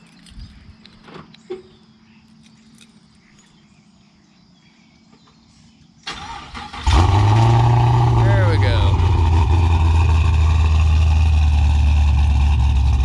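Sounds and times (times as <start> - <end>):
insects chirping: 0.0 - 6.9
car starter cranking: 6.1 - 10.8
car engine firing: 6.1 - 13.0.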